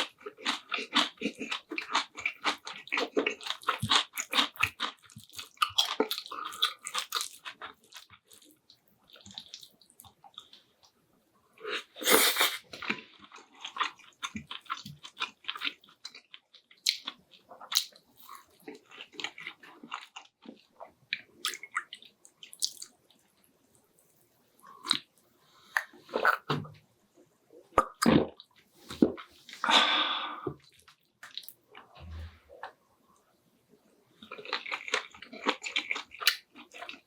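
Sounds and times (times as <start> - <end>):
person chewing food: 0.0 - 10.9, 11.6 - 23.3, 24.6 - 26.6, 30.6 - 32.8, 34.2 - 37.0.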